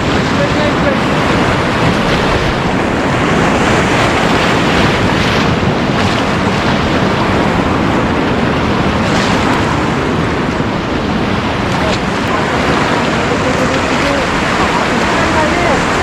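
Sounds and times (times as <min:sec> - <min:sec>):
river rapids rushing: 0:00.0 - 0:16.0
wind buffeting microphone: 0:00.0 - 0:16.0.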